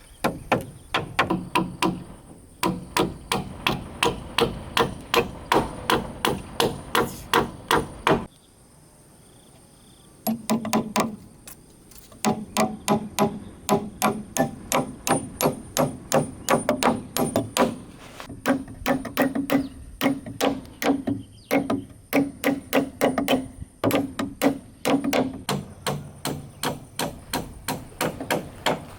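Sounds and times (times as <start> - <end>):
hammer blows on wood: 0.2 - 8.3.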